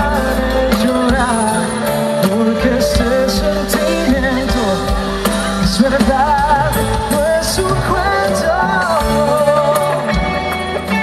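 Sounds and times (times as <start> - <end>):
live pop band music: 0.0 - 11.0.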